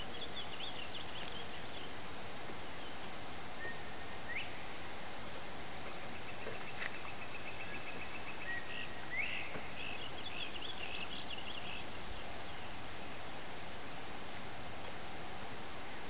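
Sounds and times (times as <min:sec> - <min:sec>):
steady background hiss: 0:00.0 - 0:16.0
birds calling: 0:05.9 - 0:12.8.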